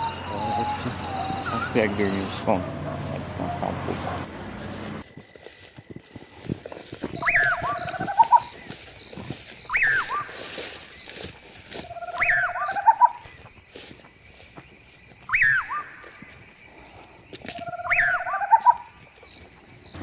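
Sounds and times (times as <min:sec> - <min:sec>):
animal call rising and falling: 0:00.0 - 0:05.0.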